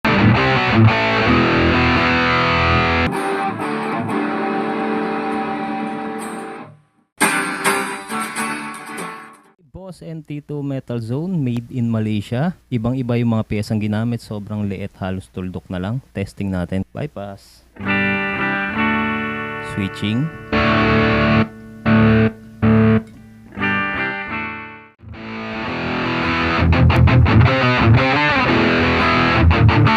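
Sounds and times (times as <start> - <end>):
electric guitar playing: 0.0 - 9.6, 17.8 - 29.9.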